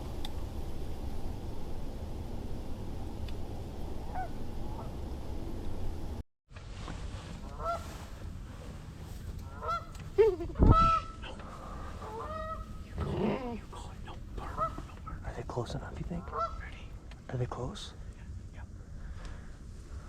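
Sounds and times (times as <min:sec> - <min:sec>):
wind rumble on microphone: 0:00.0 - 0:17.3
geese honking: 0:04.1 - 0:05.0, 0:07.4 - 0:08.0, 0:09.4 - 0:10.0, 0:10.6 - 0:13.6, 0:14.3 - 0:16.7.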